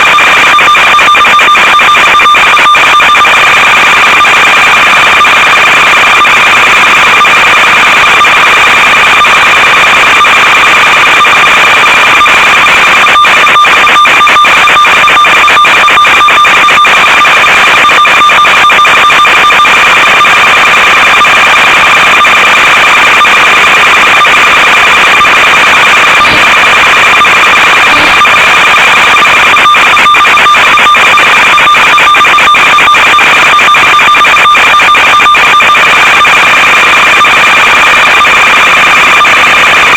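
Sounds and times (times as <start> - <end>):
crackling: 16.8 - 33.9
electronic buzz and hiss: 27.5 - 28.6.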